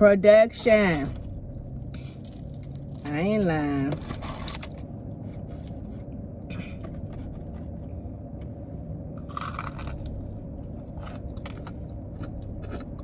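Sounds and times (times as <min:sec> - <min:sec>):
steady low hum: 0:00.0 - 0:13.0
chewing and crunching fried food: 0:01.2 - 0:03.2, 0:04.0 - 0:06.1, 0:09.2 - 0:13.0.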